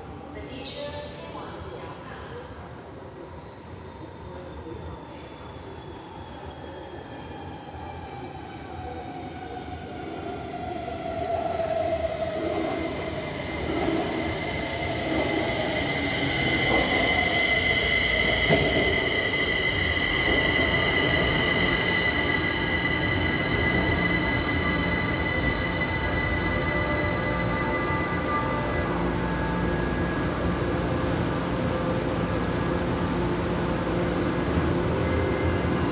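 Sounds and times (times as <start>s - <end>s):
train braking: 3.1s - 31.5s.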